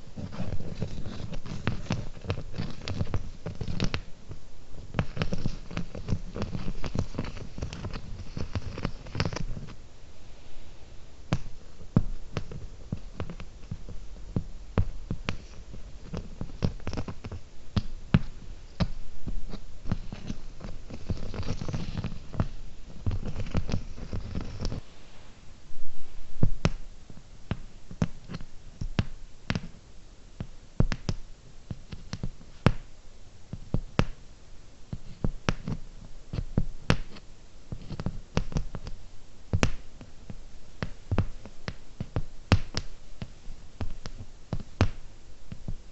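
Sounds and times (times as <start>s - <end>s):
rustling handling noise: 0.0s - 29.8s
fingernail tapping: 40.8s - 45.7s.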